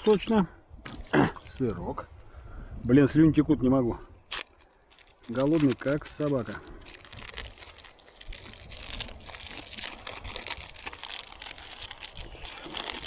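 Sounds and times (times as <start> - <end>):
plastic packaging crinkling: 4.3 - 13.0.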